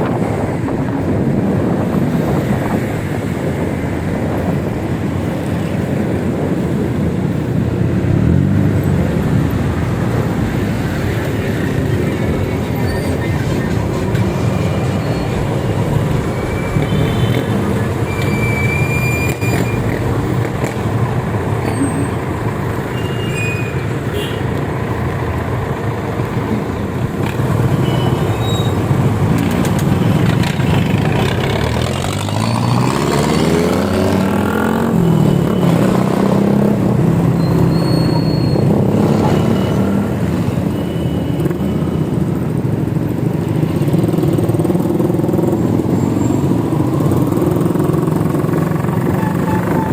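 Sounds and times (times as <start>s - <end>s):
vehicle engine speeding up: 0.0s - 40.6s
road traffic: 0.0s - 49.9s
wind noise: 0.0s - 49.9s.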